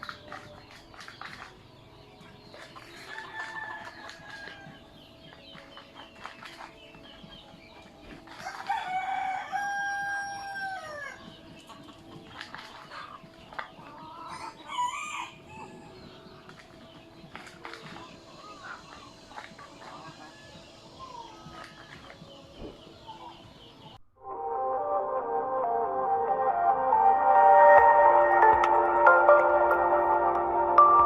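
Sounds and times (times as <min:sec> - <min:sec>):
chickens clucking: 0:00.0 - 0:24.0
rooster crowing: 0:08.4 - 0:11.2, 0:14.3 - 0:15.8.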